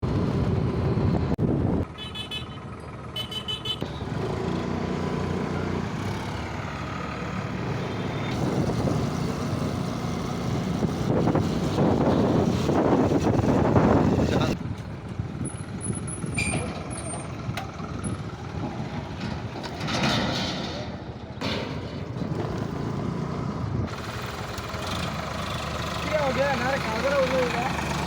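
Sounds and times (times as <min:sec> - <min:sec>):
tractor engine running: 0:00.0 - 0:28.0
horn sounding: 0:01.8 - 0:03.8.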